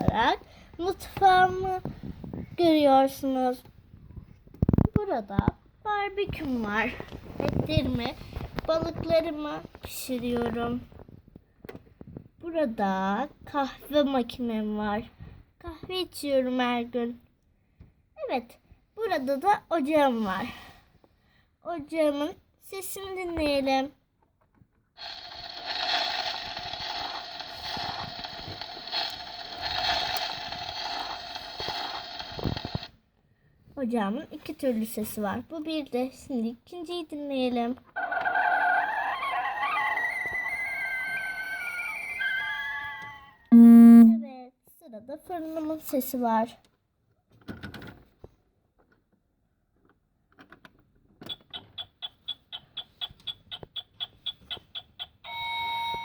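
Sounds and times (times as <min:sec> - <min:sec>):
crackling hiss through small speaker: 0:25.0 - 0:32.9
button clicks: 0:43.5 - 0:44.2
electronic timer ticking: 0:43.5 - 0:44.2.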